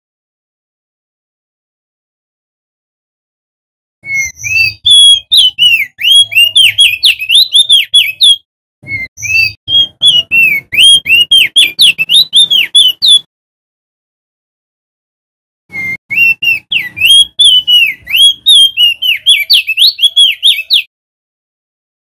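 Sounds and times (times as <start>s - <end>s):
bird singing whistled chirps: 4.0s - 13.3s, 15.7s - 20.9s.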